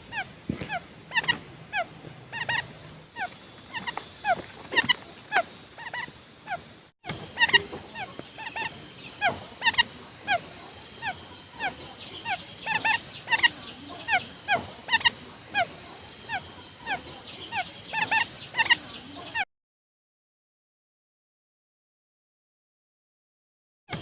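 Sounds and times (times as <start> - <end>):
quail calling: 0.0 - 19.4.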